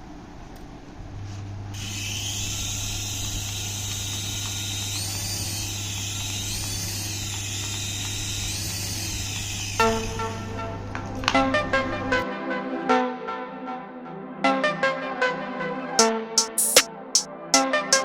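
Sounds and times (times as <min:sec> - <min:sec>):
toy electric motor whining: 0:01.8 - 0:10.5.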